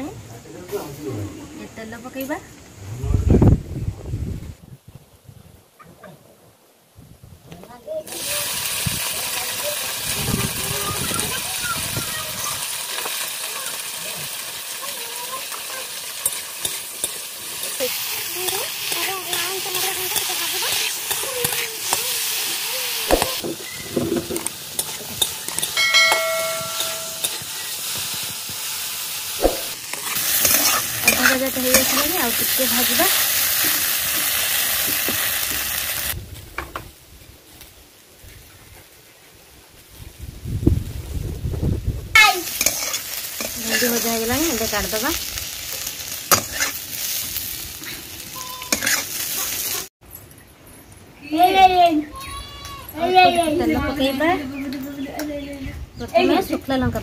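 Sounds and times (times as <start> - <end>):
okra sizzling in hot oil: 7.9 - 38.6, 39.8 - 49.9
brief ringing tone: 25.8 - 27.2
metal ladle scraping a pan: 29.4 - 32.4, 42.5 - 44.0, 46.3 - 46.8, 48.4 - 49.7.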